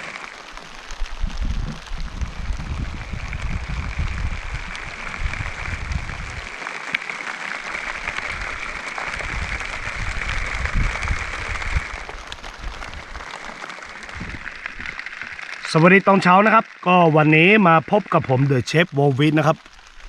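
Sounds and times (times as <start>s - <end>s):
heavy rain: 0.0s - 20.0s
wind gusting on microphone: 0.8s - 6.6s, 7.9s - 13.2s, 14.0s - 15.4s.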